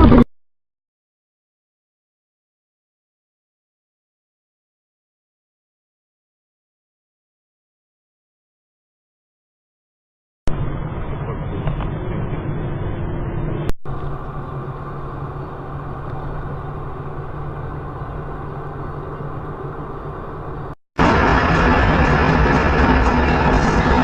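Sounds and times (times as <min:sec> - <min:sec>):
vehicle engine drone: 0:00.0 - 0:00.3, 0:10.5 - 0:24.0
road noise: 0:10.5 - 0:24.0.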